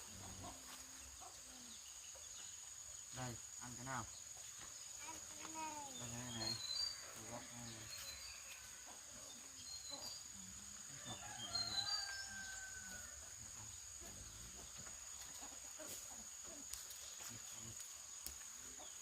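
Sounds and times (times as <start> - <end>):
rooster crowing: 11.0 - 13.4.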